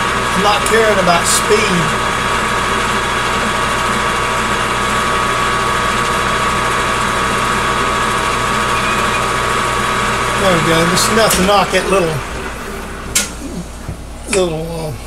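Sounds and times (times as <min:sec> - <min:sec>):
metal lathe whine and hum: 0:00.0 - 0:14.8.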